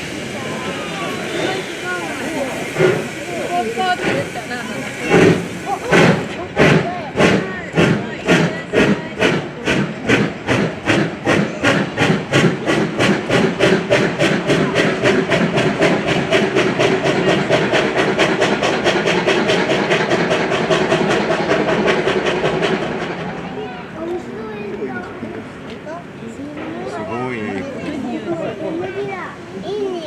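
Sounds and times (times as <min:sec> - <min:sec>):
steam locomotive exhaust chuffing: 0:00.0 - 0:24.0.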